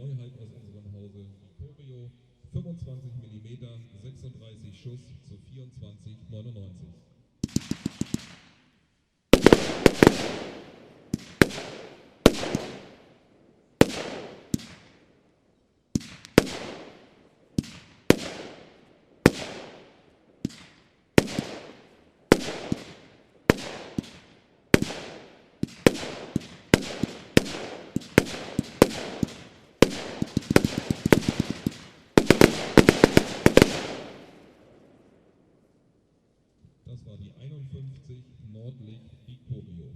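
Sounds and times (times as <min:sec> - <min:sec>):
firework battery bangs: 0:07.4 - 0:08.6, 0:09.4 - 0:13.1, 0:13.8 - 0:15.1, 0:16.0 - 0:34.6.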